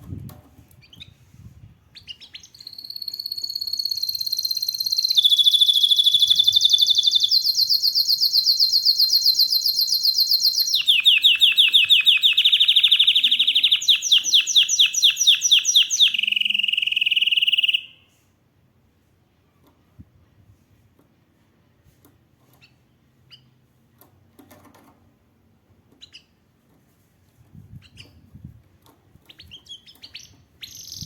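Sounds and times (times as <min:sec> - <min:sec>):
canary singing trills: 0:01.9 - 0:18.0, 0:29.3 - 0:31.0.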